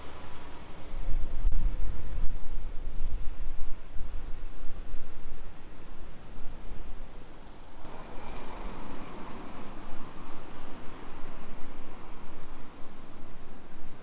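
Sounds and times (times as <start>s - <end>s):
wind rumble on microphone: 0.0s - 14.0s
vehicle passing by: 7.1s - 12.3s.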